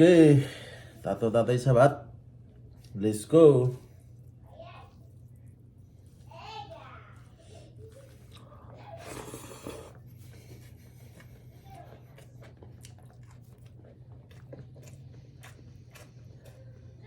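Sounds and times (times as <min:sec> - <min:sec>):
steady low hum: 0:00.0 - 0:17.0
chewing with wet mouth clicks: 0:07.8 - 0:17.0.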